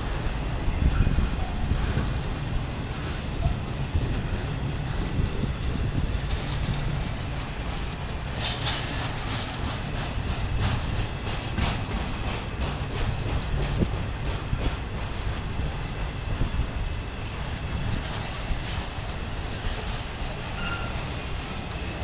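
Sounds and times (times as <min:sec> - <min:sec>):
freight train rumbling past: 0:00.0 - 0:22.0
wheels clacking over rail joints: 0:00.8 - 0:22.0.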